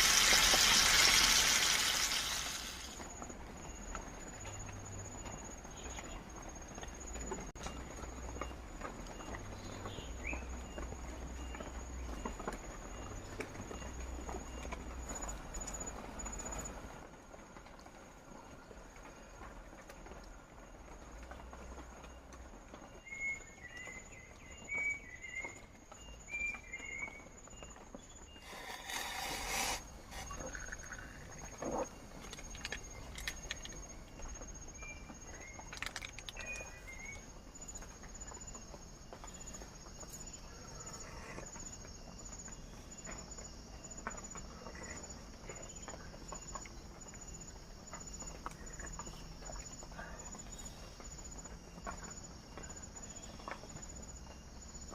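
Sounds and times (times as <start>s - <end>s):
insect trill: 0.0s - 8.5s, 24.7s - 54.9s.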